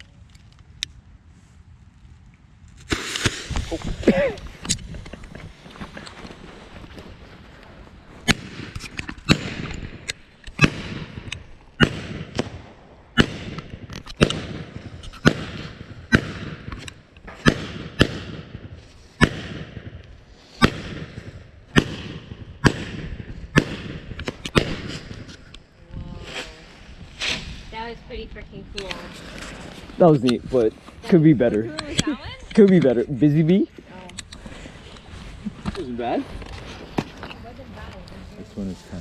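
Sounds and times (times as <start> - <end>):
fireworks bangs: 2.8 - 7.4, 8.0 - 25.5.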